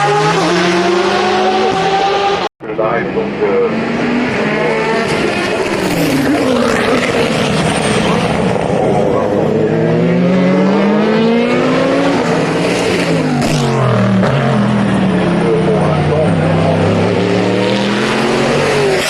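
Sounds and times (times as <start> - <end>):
racing car engines at full throttle: 0.0 - 19.0.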